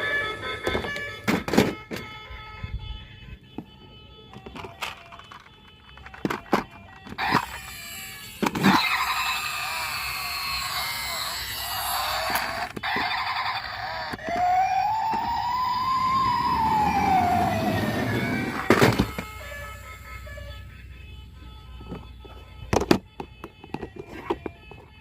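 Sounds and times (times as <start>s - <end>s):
warbling electronic siren: 7.0s - 23.3s
rising and falling siren tone: 8.7s - 20.8s.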